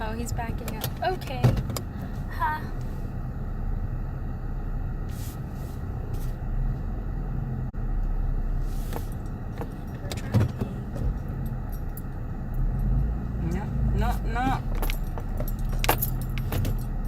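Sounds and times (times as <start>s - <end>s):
engine and road rumble in car: 0.0s - 17.0s
light clicks and rattles: 14.6s - 17.0s.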